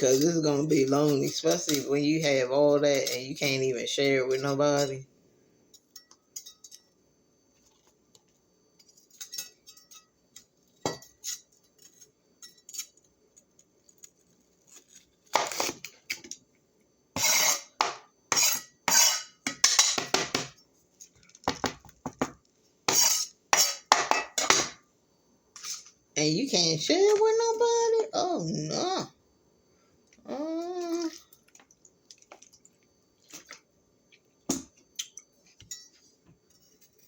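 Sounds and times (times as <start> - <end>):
cutlery and dishes clattering: 0.0 - 5.0, 8.8 - 10.1, 17.2 - 20.6, 22.9 - 24.8.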